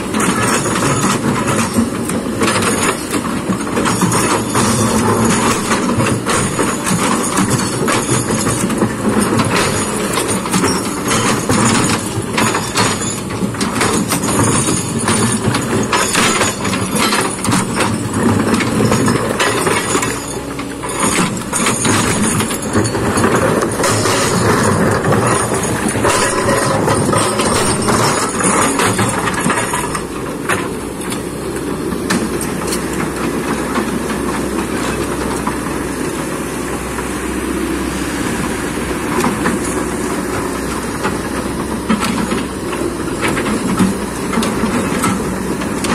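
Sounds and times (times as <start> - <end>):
clattering knocks and rattles: 0.0 - 36.2, 39.1 - 45.9
excavator diesel engine: 0.0 - 45.9.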